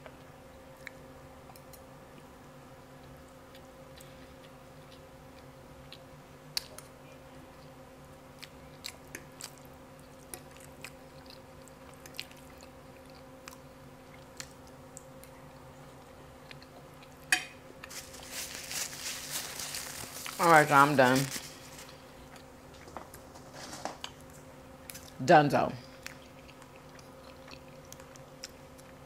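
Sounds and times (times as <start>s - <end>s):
steady low hum: 0.0s - 29.0s
person chewing food: 8.4s - 20.4s, 25.8s - 29.0s.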